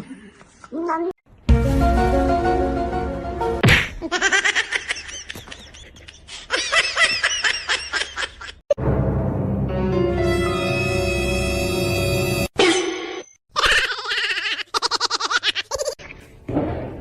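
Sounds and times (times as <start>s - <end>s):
background music: 1.5s - 3.6s, 8.8s - 12.5s
rapid high-pitched laughter: 13.5s - 16.0s.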